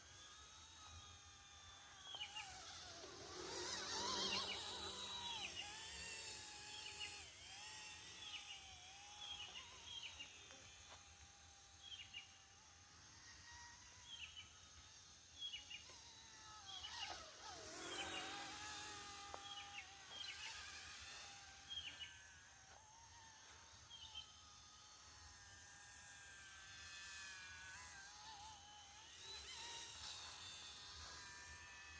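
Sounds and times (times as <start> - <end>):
electric motor whine: 0.0 - 31.9
birds chirping: 17.8 - 22.2.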